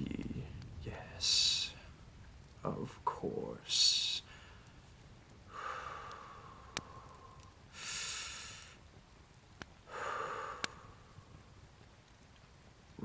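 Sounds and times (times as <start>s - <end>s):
faint clicks: 3.8s - 7.6s, 8.3s - 13.0s
man breathing out: 4.3s - 4.8s, 5.5s - 8.8s, 9.9s - 11.4s.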